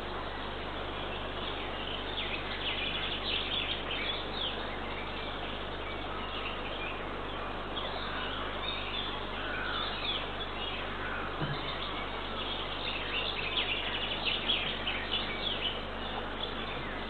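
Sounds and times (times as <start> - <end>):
songbirds chirping and singing: 0.0 - 17.0
steady background hiss: 0.0 - 17.0.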